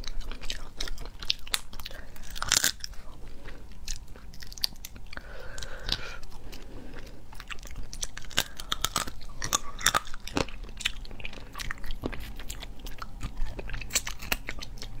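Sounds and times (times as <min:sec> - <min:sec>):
sharp crunches and clicks: 0:00.0 - 0:03.0, 0:07.4 - 0:15.0
crab biting and chewing: 0:00.0 - 0:15.0.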